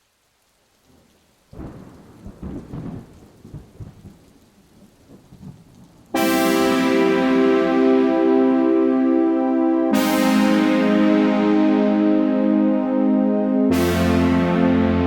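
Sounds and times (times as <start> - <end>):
light rain: 0.0 - 9.1
thunder rolling: 1.6 - 4.2
sustained keyboard chords: 6.2 - 15.0.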